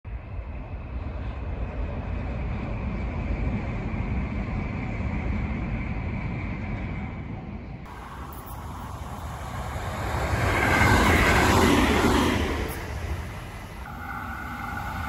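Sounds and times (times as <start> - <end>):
distant train passing: 0.1 - 15.0.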